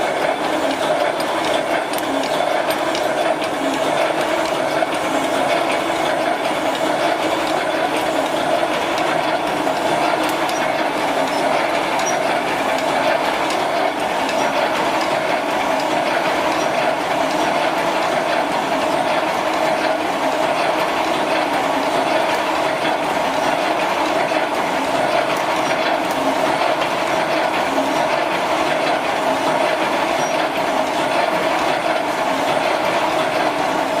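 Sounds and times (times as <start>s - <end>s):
constant machine hum: 0.0s - 34.0s
machine clattering: 0.0s - 34.0s.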